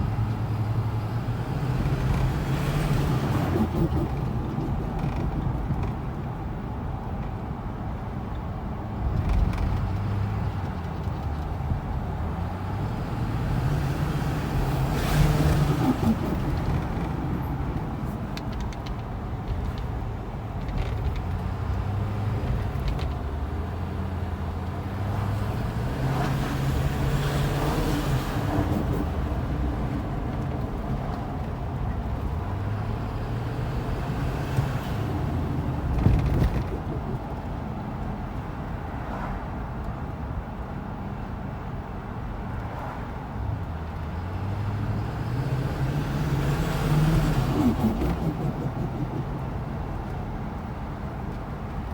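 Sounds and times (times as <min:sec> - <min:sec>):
diesel truck engine accelerating: 0:00.0 - 0:07.1, 0:09.0 - 0:38.9, 0:43.5 - 0:51.9
turbo flutter: 0:02.8 - 0:05.7, 0:35.8 - 0:37.5, 0:46.5 - 0:50.4.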